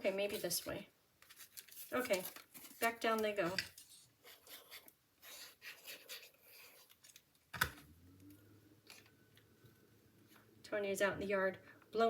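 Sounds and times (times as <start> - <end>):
paper card rustling and tapping: 0.3 - 4.0.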